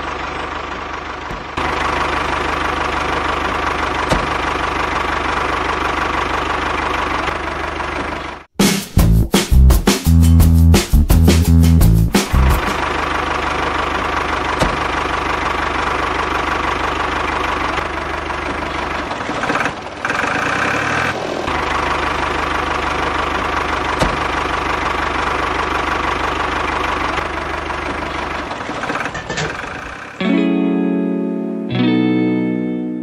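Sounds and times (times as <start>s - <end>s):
small engine running: 0.0s - 8.5s, 12.4s - 30.2s.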